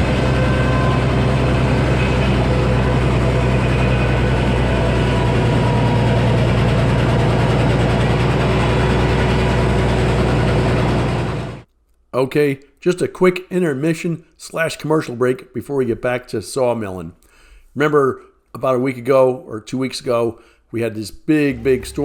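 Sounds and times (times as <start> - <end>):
heavy engine idling: 0.0 - 11.7, 21.5 - 22.0.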